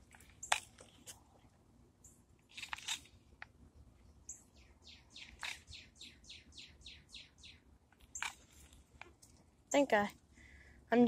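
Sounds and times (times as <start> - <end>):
songbird whistling: 4.3 - 7.6.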